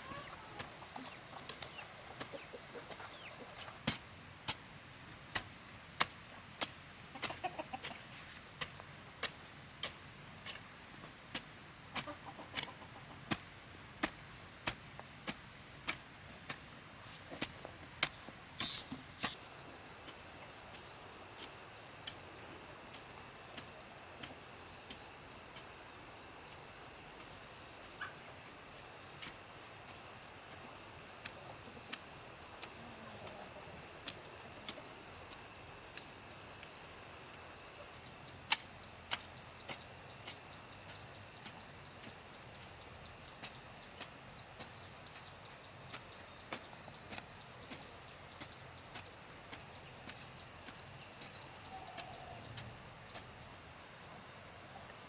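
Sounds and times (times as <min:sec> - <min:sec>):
chickens clucking: 0:00.0 - 0:03.9, 0:06.9 - 0:08.3, 0:11.9 - 0:14.2, 0:27.2 - 0:28.4, 0:30.6 - 0:35.4.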